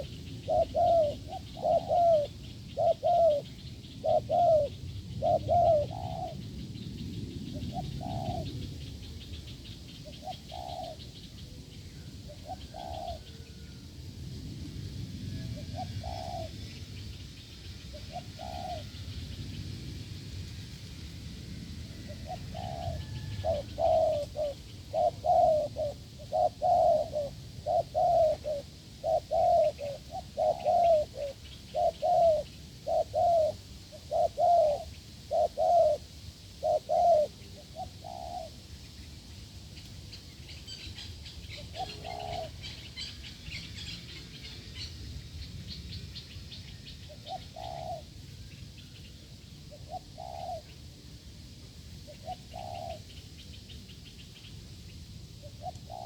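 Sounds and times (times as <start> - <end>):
dove cooing: 0.0 - 6.8, 7.4 - 8.7, 10.0 - 13.8, 15.3 - 16.6, 17.9 - 19.1, 21.9 - 38.6, 41.5 - 43.2, 47.1 - 48.2, 49.7 - 50.8, 52.1 - 53.2, 55.4 - 56.0
small birds chirping: 22.6 - 48.1.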